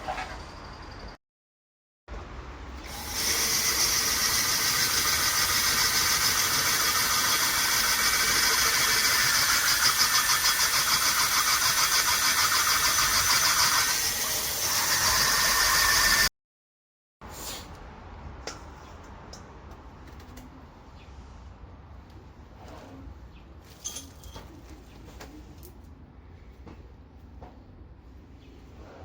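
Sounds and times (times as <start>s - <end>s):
power tool whirring on metal: 2.8s - 16.3s.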